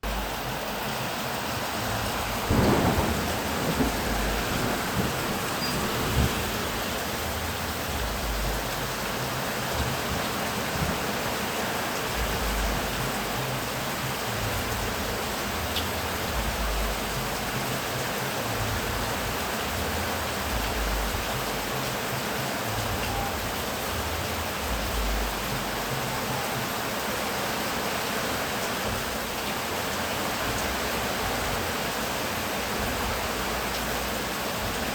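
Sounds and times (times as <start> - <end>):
heavy rain falling: 0.0 - 34.9
low rumbles of thunder: 1.7 - 8.8
sharp thunderclap: 2.3 - 7.3.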